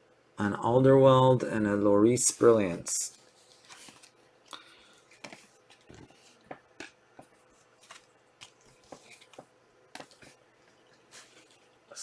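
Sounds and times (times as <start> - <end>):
trading cards being handled: 2.3 - 10.4.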